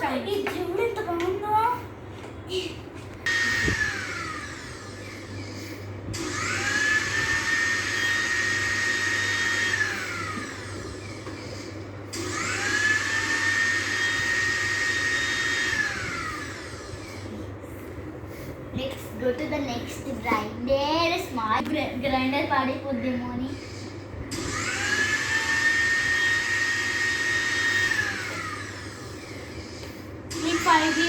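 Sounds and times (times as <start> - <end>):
mixer grinder motor whining: 3.2 - 18.6, 23.2 - 31.0.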